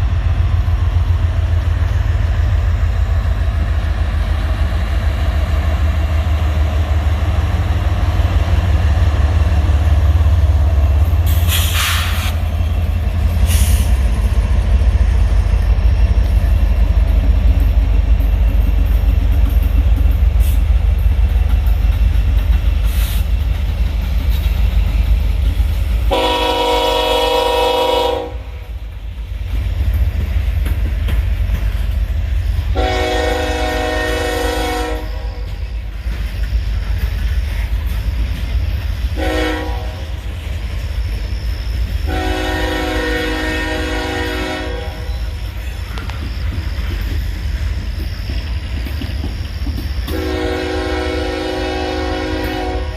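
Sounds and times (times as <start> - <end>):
locomotive rumbling: 0.0 - 52.9
train air horn: 11.3 - 12.4, 26.1 - 28.6, 32.7 - 35.6, 39.2 - 40.3, 42.1 - 45.4, 50.1 - 52.9.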